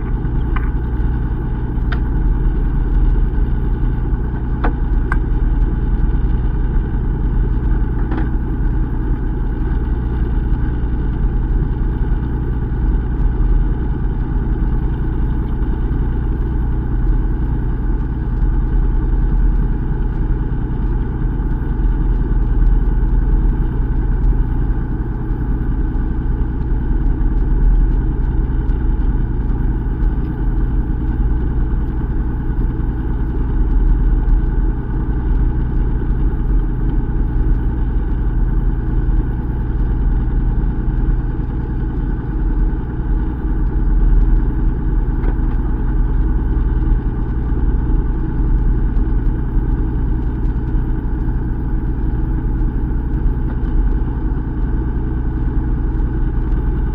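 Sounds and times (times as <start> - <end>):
boat engine humming: 0.0 - 13.2.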